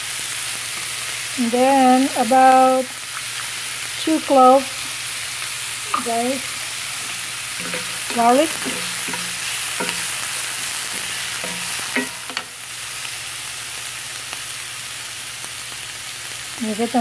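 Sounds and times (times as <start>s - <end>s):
onion sizzling in a skillet: 0.0s - 17.0s
wooden spatula scraping a pan: 7.0s - 12.5s.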